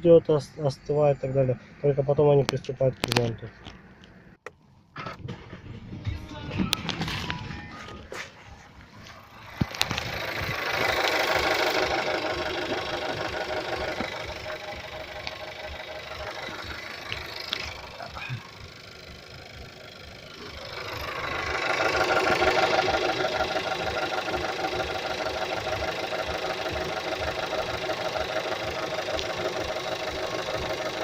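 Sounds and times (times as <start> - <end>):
car engine idling: 0.0 - 31.0
rhythmic grinding under hood: 5.0 - 31.0.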